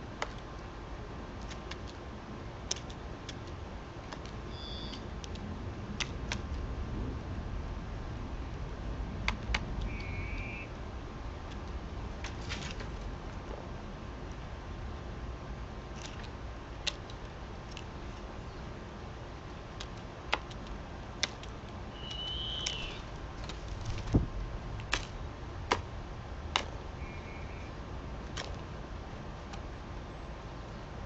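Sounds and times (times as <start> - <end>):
bird call: 4.5 - 5.1, 9.9 - 10.7, 21.9 - 23.1, 27.0 - 27.7
sharp clicks and taps: 26.5 - 26.8.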